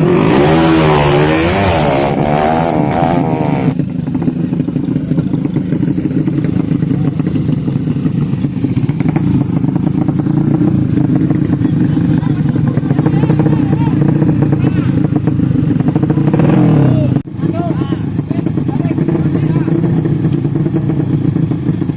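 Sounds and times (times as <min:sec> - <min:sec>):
motorcycle engines revving: 0:00.0 - 0:21.9
steady engine drone: 0:00.0 - 0:21.9.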